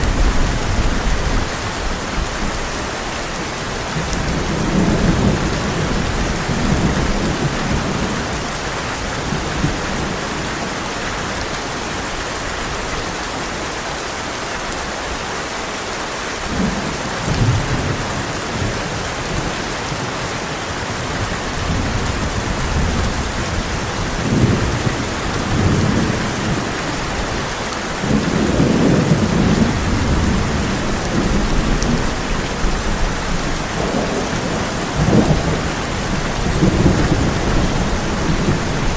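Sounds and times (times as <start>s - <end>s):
heavy rain on a tin roof: 0.0s - 38.9s
rolling thunder: 28.0s - 38.9s.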